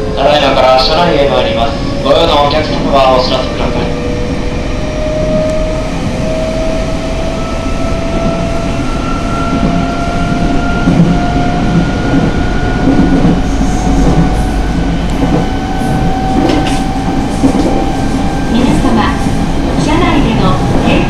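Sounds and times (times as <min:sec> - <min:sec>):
wheels rumbling on rails: 0:00.0 - 0:21.0.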